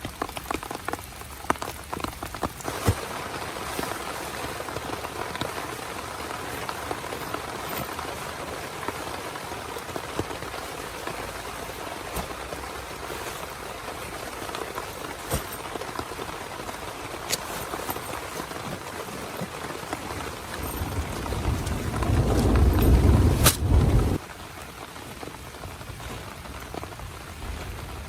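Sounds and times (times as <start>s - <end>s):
heavy rain on tent: 0.0s - 28.0s
raindrops ticking on fabric: 0.0s - 28.0s
low rumble of thunder: 20.6s - 24.2s.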